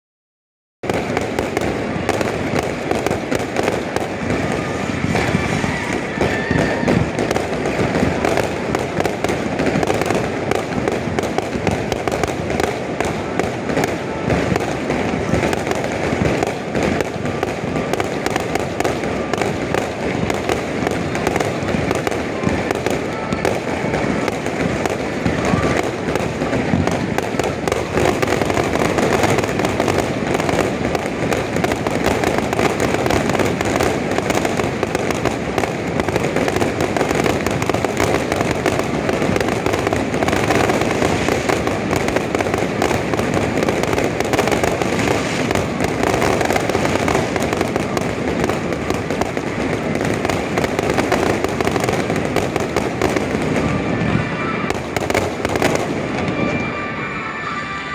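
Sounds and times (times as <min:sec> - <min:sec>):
fireworks bursting and crackling: 0:00.8 - 0:57.9
music playing: 0:56.0 - 0:57.9.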